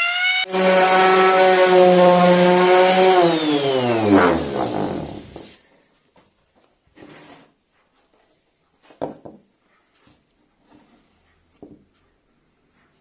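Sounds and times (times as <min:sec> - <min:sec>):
wood scraping on workbench: 0:00.6 - 0:05.6, 0:07.0 - 0:07.5.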